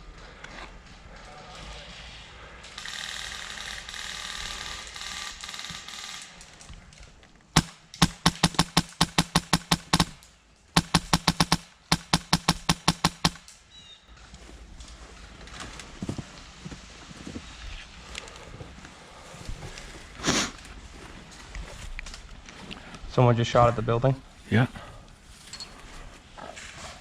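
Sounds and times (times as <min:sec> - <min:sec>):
airsoft gun rapid shots: 0:07.6 - 0:10.2, 0:10.8 - 0:13.5.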